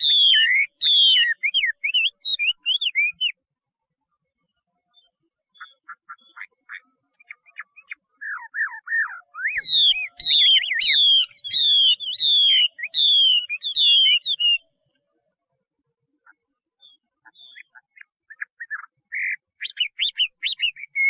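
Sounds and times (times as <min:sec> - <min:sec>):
bird singing whistles: 0:00.0 - 0:03.4, 0:07.5 - 0:14.6, 0:18.4 - 0:21.0.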